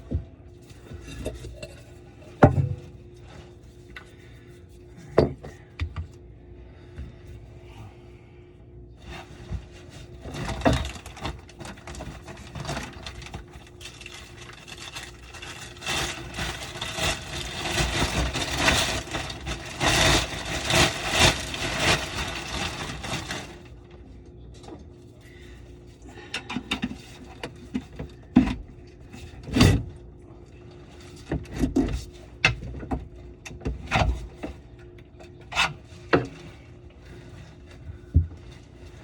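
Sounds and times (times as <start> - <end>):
scraping and rattling pipes: 0.0 - 4.4, 9.0 - 23.7, 26.1 - 29.8, 33.8 - 39.0.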